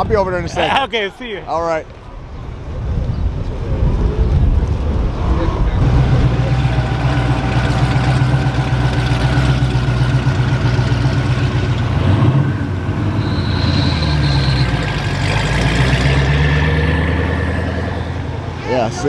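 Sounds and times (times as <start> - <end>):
car engine running at low revs: 4.0 - 18.6.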